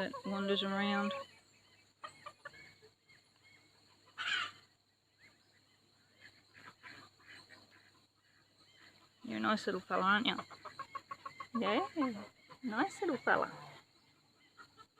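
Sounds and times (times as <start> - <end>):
poultry calling: 0.0 - 5.4, 6.1 - 14.9
rooster clucking: 9.3 - 13.8.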